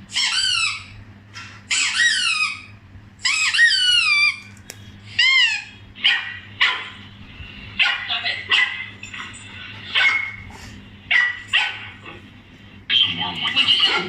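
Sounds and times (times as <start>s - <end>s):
high-pitched animal-like calls: 1.7s - 4.4s, 5.1s - 5.8s.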